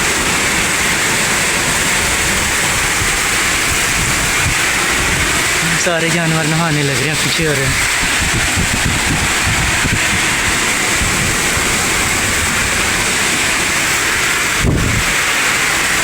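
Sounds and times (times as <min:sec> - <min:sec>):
heavy rain pouring: 0:00.0 - 0:16.0
wind buffeting microphone: 0:00.0 - 0:16.0.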